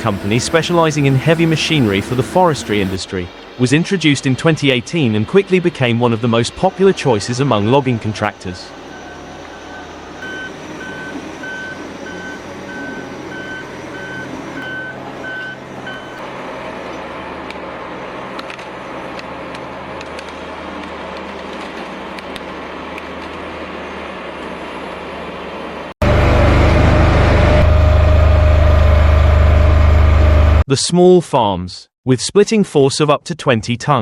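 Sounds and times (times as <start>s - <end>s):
heavy machine running: 0.0s - 3.0s, 5.1s - 30.6s
loud machine humming: 0.0s - 3.0s, 5.1s - 30.6s
reversing alarm beeping: 7.4s - 16.2s.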